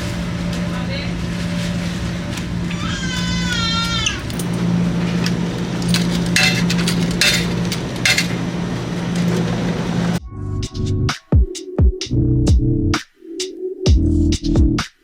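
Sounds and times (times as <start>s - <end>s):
steady low hum: 0.0s - 10.2s
electronic music with drum-machine beat: 10.2s - 15.0s.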